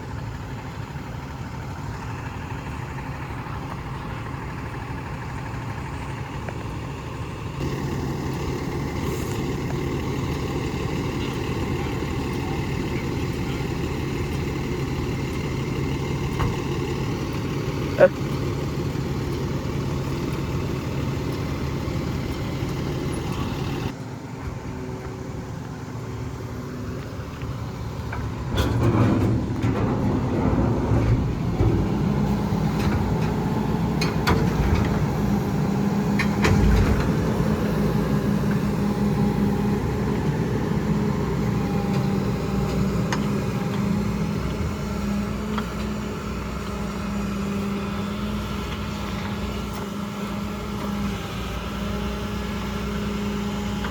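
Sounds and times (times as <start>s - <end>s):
truck diesel engine running: 0.0s - 53.9s
knocks and clatter: 28.0s - 37.6s.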